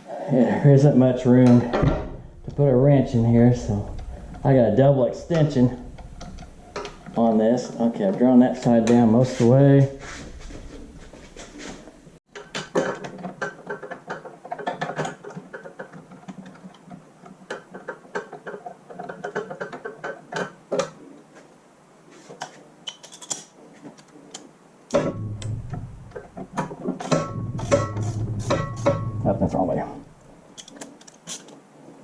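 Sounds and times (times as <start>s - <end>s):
low hum: 0.7s - 12.2s, 25.0s - 26.5s, 27.2s - 30.4s.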